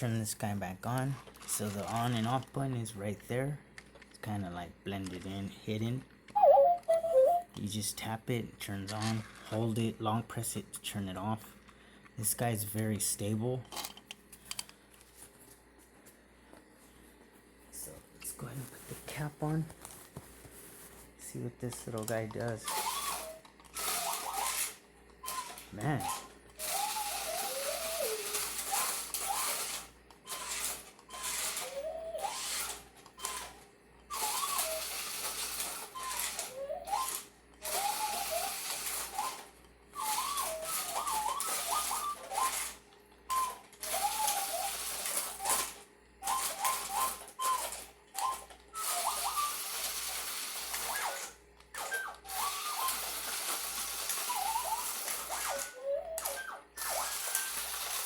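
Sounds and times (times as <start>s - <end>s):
toy motor whirring: 1.0s - 2.5s, 8.9s - 9.7s, 21.7s - 58.0s
warbling electronic chirps: 6.4s - 7.5s.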